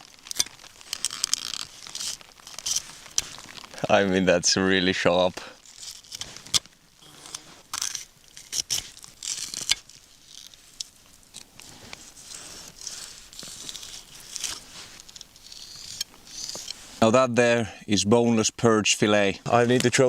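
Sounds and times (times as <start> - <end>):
knife scraping and tearing fish: 0.0 - 3.8, 5.6 - 17.0.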